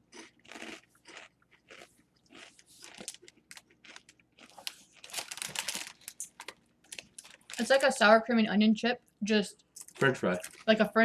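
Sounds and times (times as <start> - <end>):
crunchy snacks being chewed: 0.0 - 7.8.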